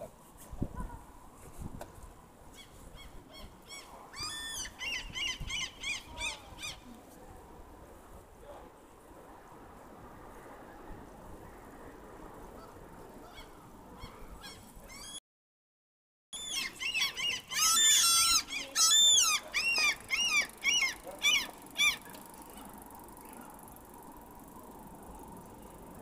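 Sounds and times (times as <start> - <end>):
bird squawking: 16.4 - 22.1.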